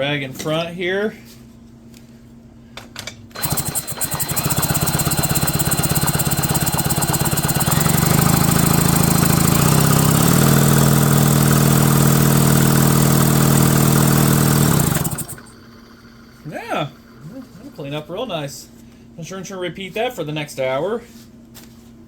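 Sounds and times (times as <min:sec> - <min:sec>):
chainsaw electric starter whirring: 0:03.3 - 0:18.1.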